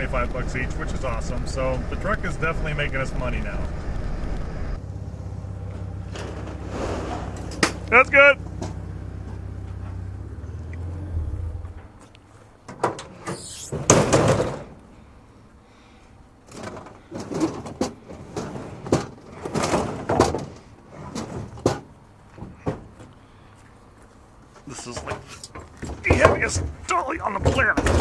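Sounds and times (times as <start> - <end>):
truck engine hum: 0.0 - 17.1
loud scrape: 6.1 - 7.7
sharp knocks and clanks: 12.7 - 14.8, 16.5 - 23.1, 24.8 - 28.0.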